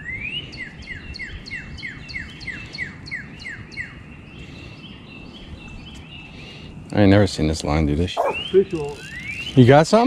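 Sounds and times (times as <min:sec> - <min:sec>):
songbird whistling: 0:08.2 - 0:09.6.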